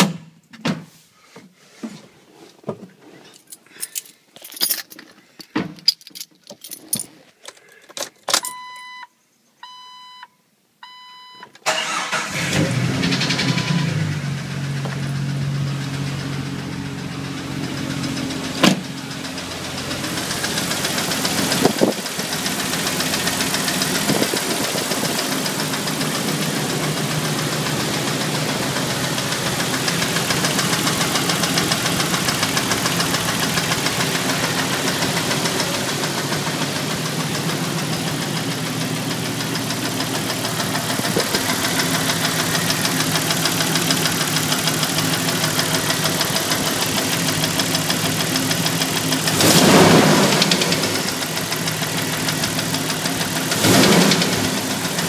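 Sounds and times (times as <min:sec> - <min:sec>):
dashboard warning chimes: 0:08.4 - 0:11.5
car engine starting and idling: 0:11.5 - 0:55.0
engine knocks: 0:38.2 - 0:55.0.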